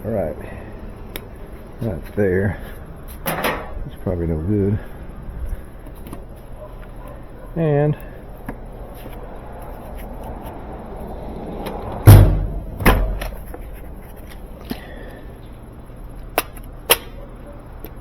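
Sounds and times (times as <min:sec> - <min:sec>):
heavy knock of tools: 0:12.0 - 0:13.4.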